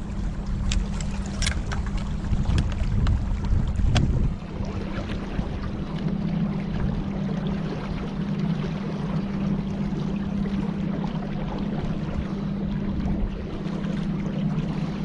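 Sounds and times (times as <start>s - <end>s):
rushing wind: 0.0s - 5.9s
engine droning steadily: 0.0s - 15.0s
water noise: 0.0s - 15.0s.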